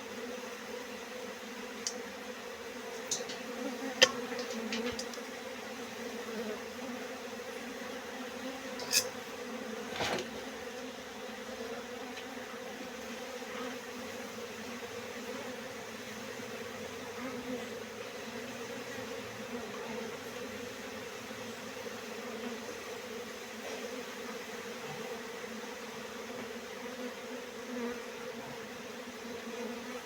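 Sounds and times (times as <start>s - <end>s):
honeybees buzzing: 0.0s - 30.0s
brief rustle: 9.9s - 10.4s.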